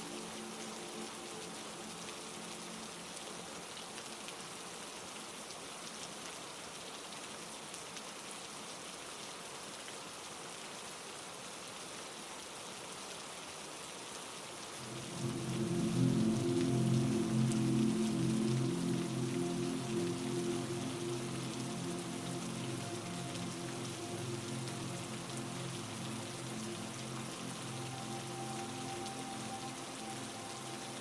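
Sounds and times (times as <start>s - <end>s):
heavy rain: 0.0s - 31.0s
low drone of held tones: 14.8s - 31.0s.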